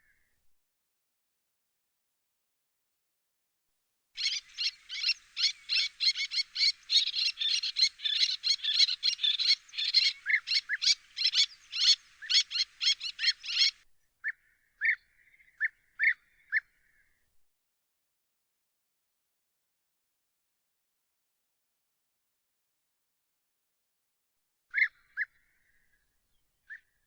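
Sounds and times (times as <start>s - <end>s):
songbird chirps and trills: 4.2s - 13.8s.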